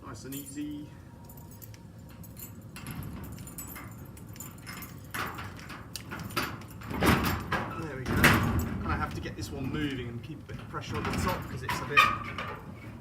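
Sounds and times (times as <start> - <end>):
key and handle rattling: 0.3 - 12.7
latch clacks: 1.6 - 10.0
garage door scraping: 2.6 - 13.0.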